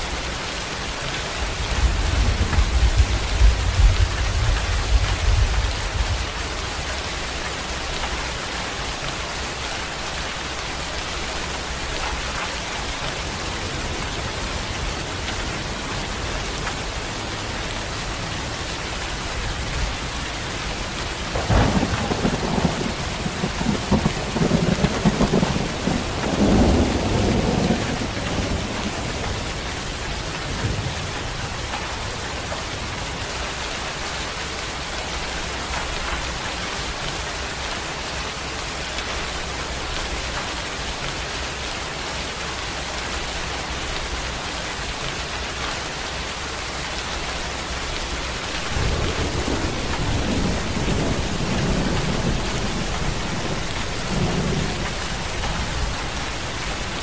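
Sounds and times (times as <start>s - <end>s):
steady rain: 0.0s - 57.0s
thunder rolling: 21.3s - 29.6s, 48.5s - 57.0s.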